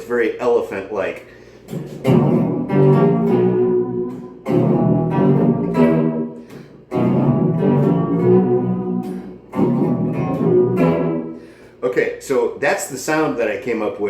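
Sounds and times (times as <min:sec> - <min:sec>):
deep pitch-shifted electric guitar: 0:01.7 - 0:11.4.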